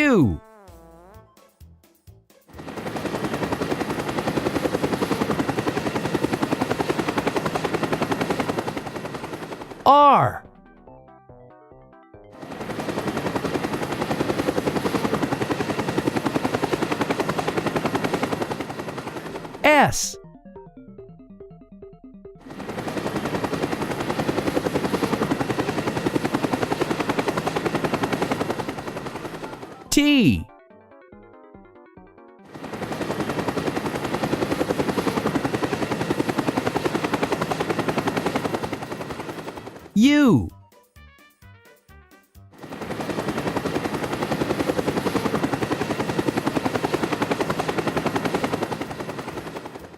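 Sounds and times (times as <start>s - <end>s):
rapid pulsing machine sound: 2.5s - 9.8s, 12.4s - 19.6s, 20.4s - 29.9s, 32.5s - 39.9s.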